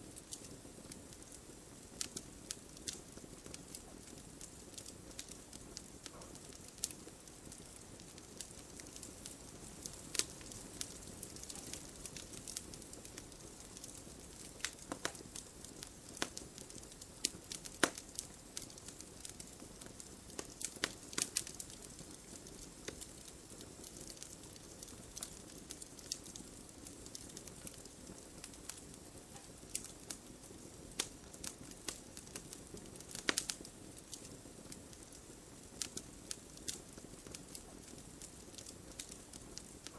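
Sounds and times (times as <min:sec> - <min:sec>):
campfire crackling and popping: 0:00.0 - 0:39.9
low hiss of fire: 0:00.0 - 0:39.9.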